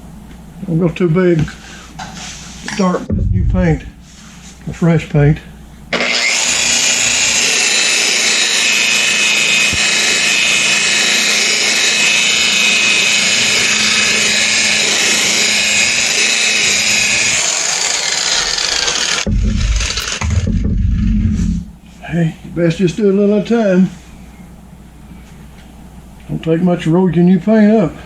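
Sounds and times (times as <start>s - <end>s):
rotary buffer motor whining: 5.9s - 21.7s
polishing pad hissing on panel: 6.1s - 21.7s.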